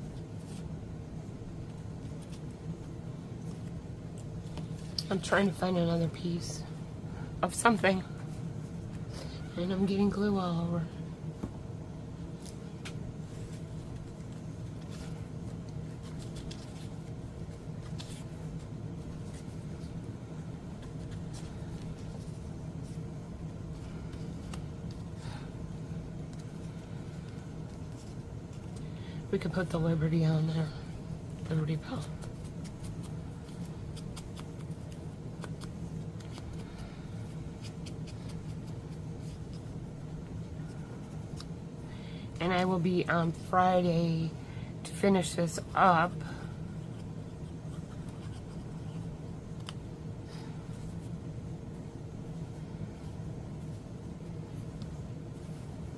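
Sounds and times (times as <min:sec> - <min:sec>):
low background hum: 0:00.0 - 0:55.9.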